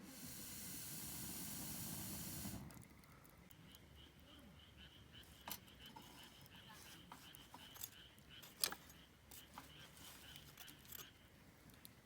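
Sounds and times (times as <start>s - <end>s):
steady hiss: 0.0s - 2.8s.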